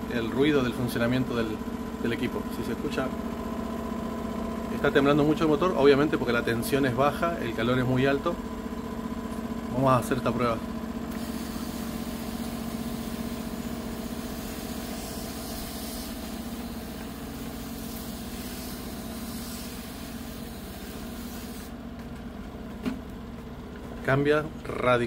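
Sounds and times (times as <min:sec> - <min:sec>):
air conditioner unit humming: 0:00.0 - 0:25.0
compressor motor shaking: 0:01.3 - 0:25.0
water spray hissing: 0:11.1 - 0:21.8.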